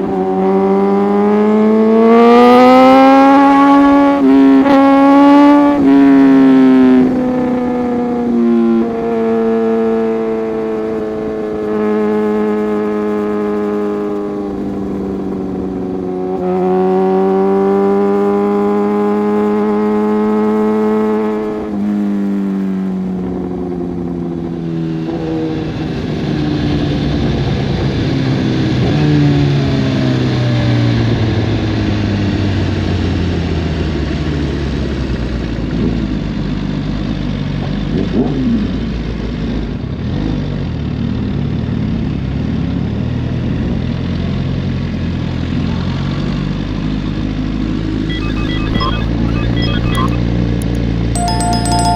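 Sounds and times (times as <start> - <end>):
motorcycle engine at high revs: 0.0 - 22.8, 35.4 - 42.8.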